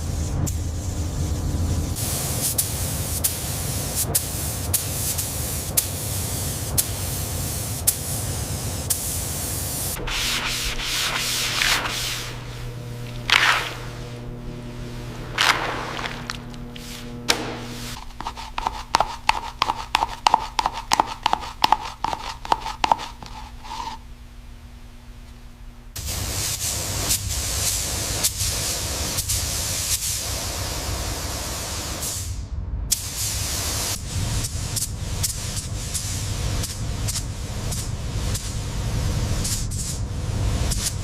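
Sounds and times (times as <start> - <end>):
loud spraying hiss: 1.9 - 14.2.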